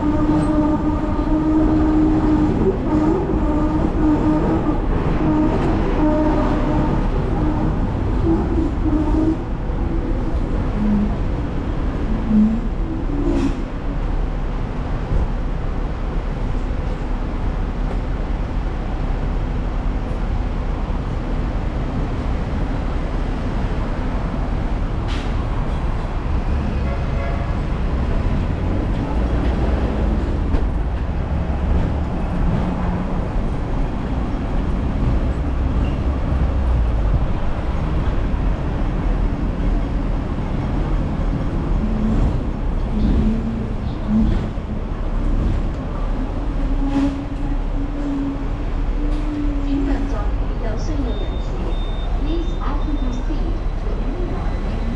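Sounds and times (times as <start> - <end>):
street traffic: 0.0 - 54.9
tram wheels rumbling on rails: 0.0 - 54.9.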